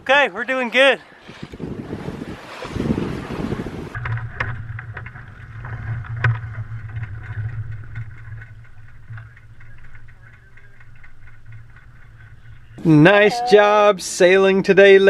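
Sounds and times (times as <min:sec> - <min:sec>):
wind buffeting microphone: 0:01.0 - 0:12.9
steady low hum: 0:03.9 - 0:13.5.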